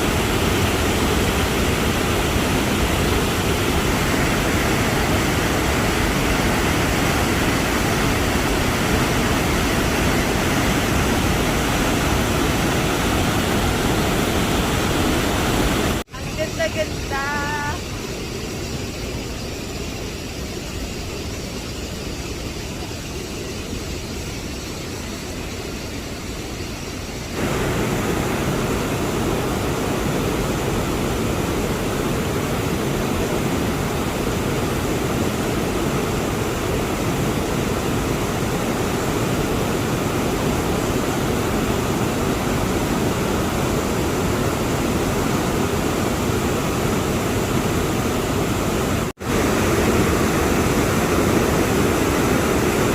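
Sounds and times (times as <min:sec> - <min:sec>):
waterfall rushing: 0:00.0 - 0:17.2, 0:25.3 - 0:52.9.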